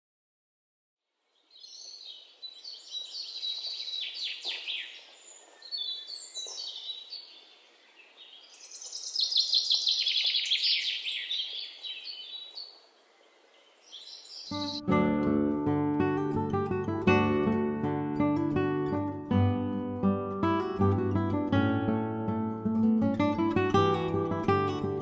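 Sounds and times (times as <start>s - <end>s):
songbirds chirping and trilling: 1.2s - 14.8s.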